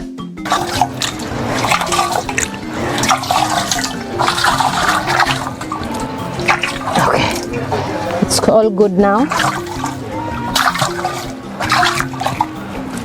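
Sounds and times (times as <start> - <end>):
background music: 0.0 - 13.0
water splashing in clay pot: 0.5 - 8.5, 9.2 - 13.0.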